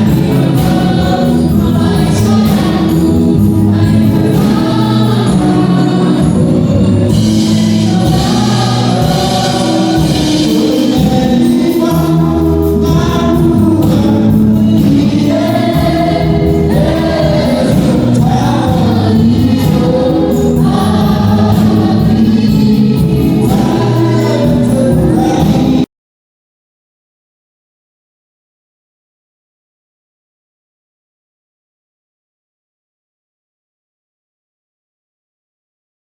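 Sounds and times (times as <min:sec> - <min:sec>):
gospel choir singing: 0:00.0 - 0:25.9.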